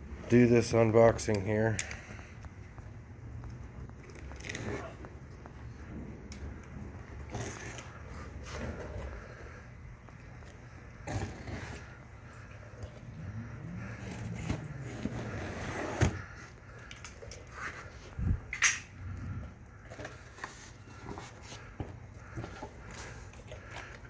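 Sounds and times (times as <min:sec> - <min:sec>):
packaging scraping and rustling: 0:13.8 - 0:16.5.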